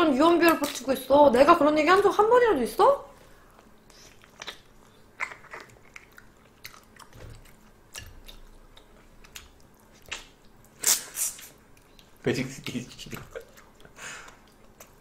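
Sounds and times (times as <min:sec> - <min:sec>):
soft chewing with wet clicks: 0:03.5 - 0:10.8, 0:11.4 - 0:15.0.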